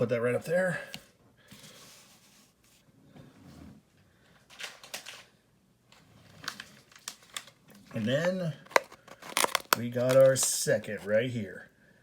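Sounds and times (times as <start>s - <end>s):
trading cards rustling: 6.4s - 11.1s.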